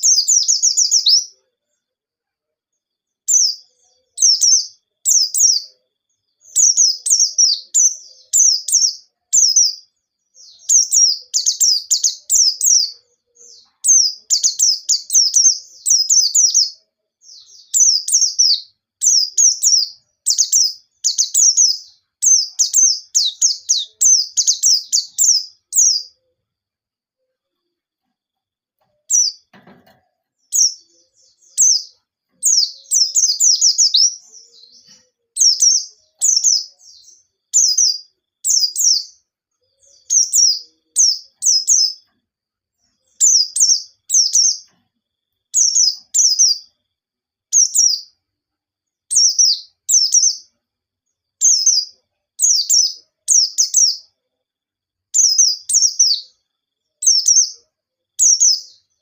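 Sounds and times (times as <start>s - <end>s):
white-eye bird chirping: 0.0s - 1.4s, 3.3s - 5.7s, 6.4s - 26.2s, 29.0s - 39.2s, 39.8s - 42.1s, 43.0s - 44.8s, 45.6s - 46.7s, 47.5s - 48.1s, 49.1s - 50.5s, 51.4s - 54.1s, 55.2s - 56.3s, 57.0s - 57.6s, 58.2s - 59.0s.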